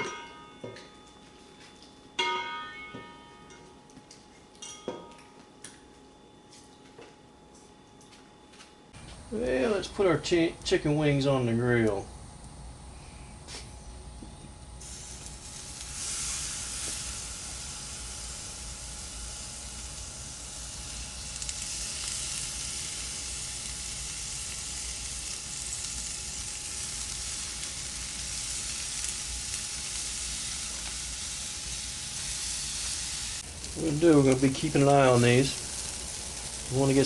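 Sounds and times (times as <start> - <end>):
chicken wings sizzling on grill: 14.8 - 37.0.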